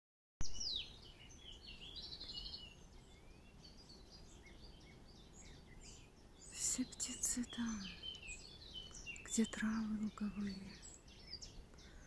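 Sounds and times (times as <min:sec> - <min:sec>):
songbirds singing and chirping: 0:00.4 - 0:12.0
steady low background rumble: 0:02.8 - 0:12.0.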